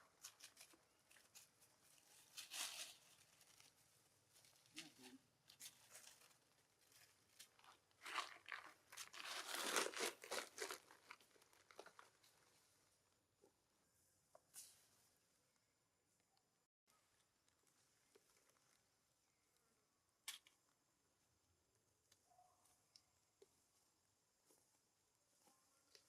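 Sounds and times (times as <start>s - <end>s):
faint crinkling rustles: 0.0s - 12.9s, 17.2s - 19.1s.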